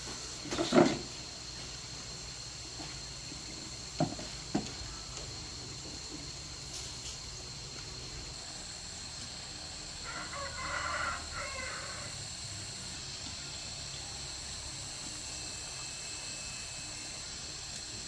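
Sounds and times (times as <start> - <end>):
steady high-pitched whine: 0.0 - 18.0
rooster crowing: 10.0 - 12.4.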